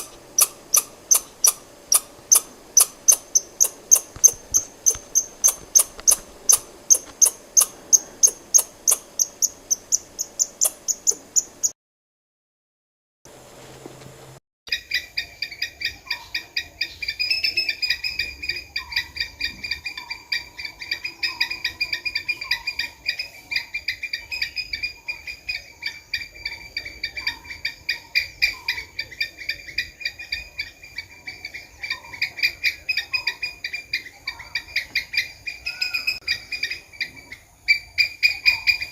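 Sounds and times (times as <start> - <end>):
squirrel chattering: 0.0 - 11.7
squirrel chirping: 0.0 - 11.8.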